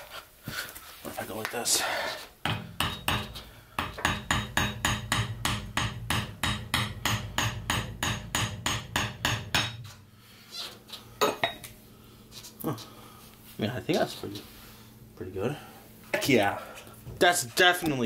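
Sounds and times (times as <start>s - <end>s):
steady low hum: 0.8s - 18.0s.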